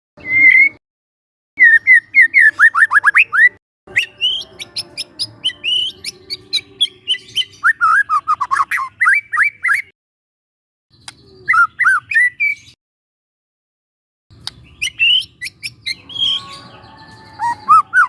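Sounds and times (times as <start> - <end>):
bird singing sweeping whistles: 0.2 - 0.8, 1.6 - 6.0, 14.8 - 18.0
bird clicks: 11.0 - 11.3, 14.4 - 14.7.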